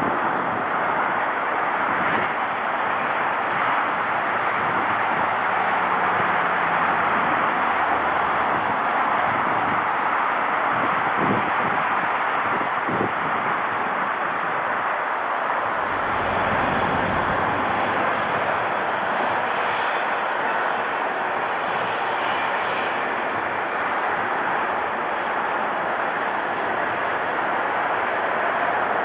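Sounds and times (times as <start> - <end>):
jet engines rushing: 15.4 - 29.0.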